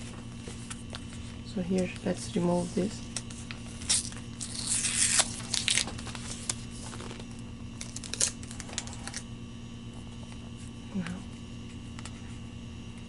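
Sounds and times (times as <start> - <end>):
packaging tearing and crinkling: 3.1 - 9.3.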